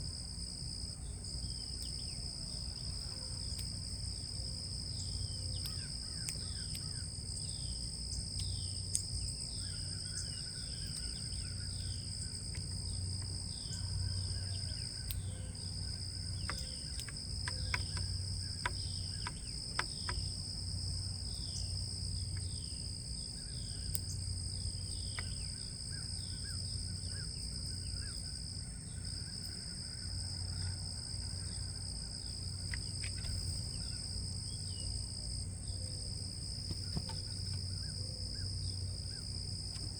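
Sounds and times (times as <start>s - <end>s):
high-pitched insect chorus: 0.0s - 39.9s
bird chirping: 16.2s - 20.3s
sharp clicks: 16.4s - 20.3s.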